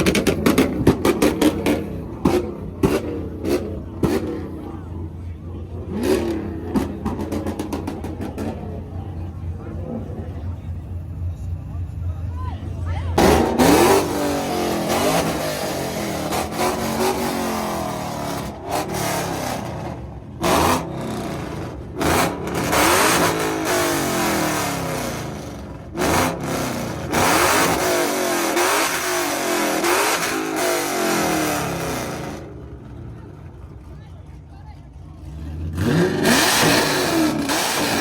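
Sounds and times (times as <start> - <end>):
car engine revving hard: 0.0 - 4.8, 5.7 - 8.9, 13.2 - 32.6, 35.2 - 38.0
loud exhaust blasts: 0.0 - 33.9, 34.9 - 38.0.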